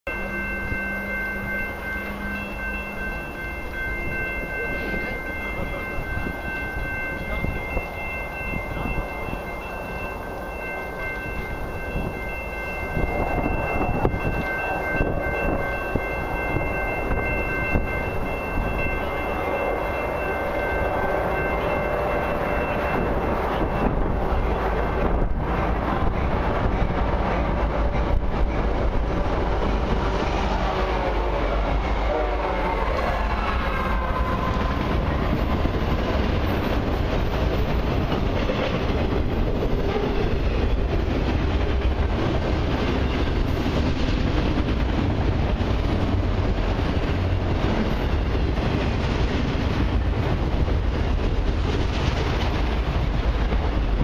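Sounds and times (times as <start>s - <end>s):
high-pitched chord of tones: 0.1s - 24.6s
freight train rumble: 0.1s - 54.0s.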